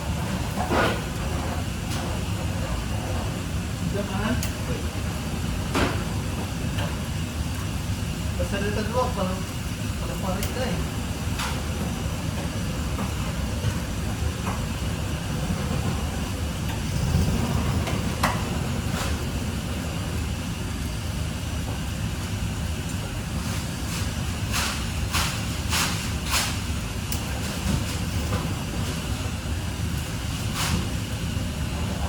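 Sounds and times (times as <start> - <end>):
steady low rumble: 26.7 - 32.0.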